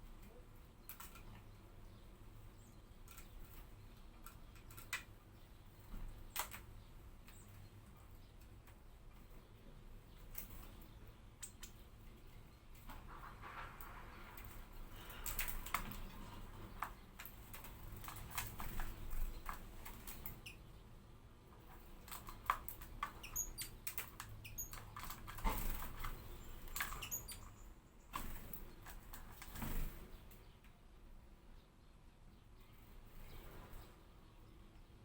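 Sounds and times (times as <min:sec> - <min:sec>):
bird clicking and pecking: 0:00.2 - 0:01.5, 0:03.0 - 0:05.2, 0:06.0 - 0:07.6, 0:13.8 - 0:20.6, 0:21.7 - 0:27.6, 0:28.2 - 0:29.9.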